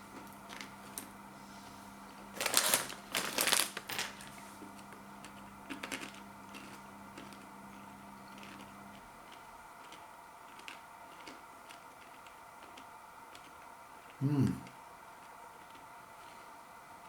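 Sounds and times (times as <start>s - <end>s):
chips crunching while chewed: 2.3s - 4.3s, 5.2s - 14.2s.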